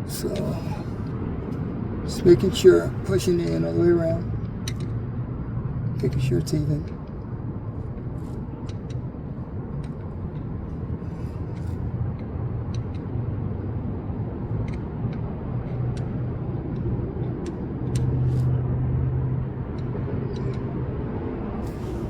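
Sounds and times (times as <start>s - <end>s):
steady low rumble: 0.0s - 22.0s
small sharp clicks and taps: 4.4s - 5.0s, 14.6s - 18.2s, 19.7s - 20.8s.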